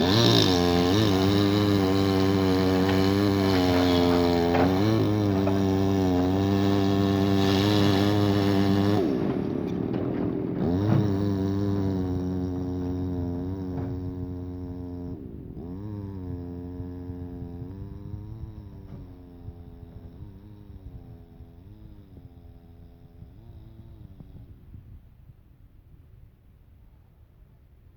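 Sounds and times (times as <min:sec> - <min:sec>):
large engine revving: 0:00.0 - 0:24.5.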